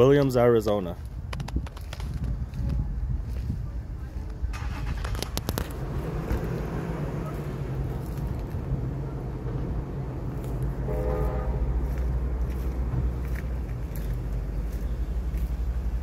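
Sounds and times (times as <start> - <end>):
low engine rumble: 0.0 - 16.0
horn sounding: 10.7 - 12.2.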